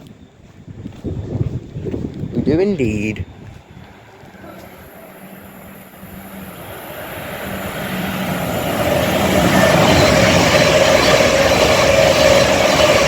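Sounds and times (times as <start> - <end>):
rail and wheel noise: 0.0 - 13.0
electric train approaching: 2.9 - 13.0
train motor whine: 3.2 - 13.0.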